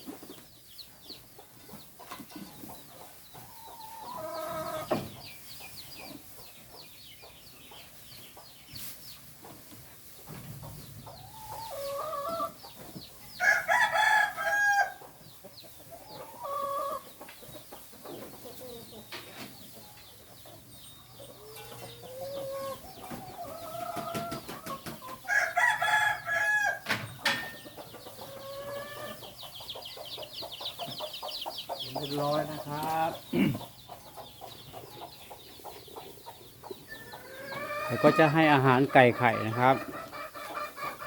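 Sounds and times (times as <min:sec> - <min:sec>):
chickens clucking: 0:00.0 - 0:41.0
rooster crowing: 0:13.4 - 0:15.0, 0:25.3 - 0:26.9.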